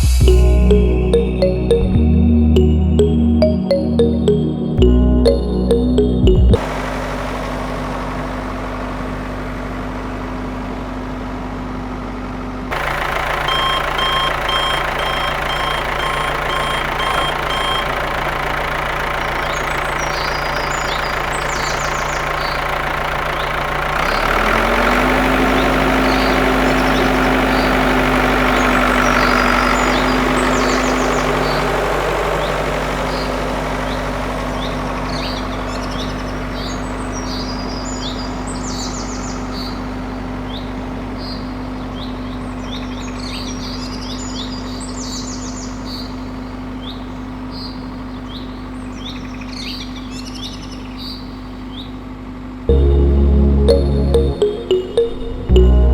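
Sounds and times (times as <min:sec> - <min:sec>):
birds chirping: 0:12.7 - 0:52.0
short reversing alarm beeps: 0:13.4 - 0:18.0
low hum: 0:52.7 - 0:55.9.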